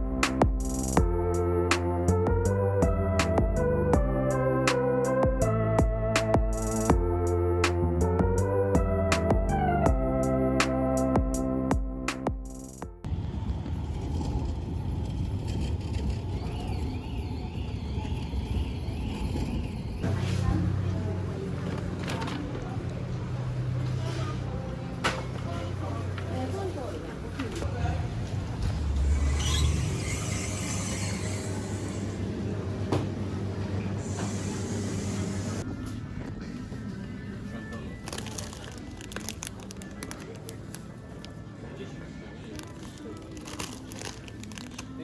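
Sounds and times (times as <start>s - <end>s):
steady low rumble: 0.0s - 10.4s, 13.0s - 25.0s
keyboard music: 0.0s - 13.1s
moving vehicle rumble: 13.1s - 42.0s.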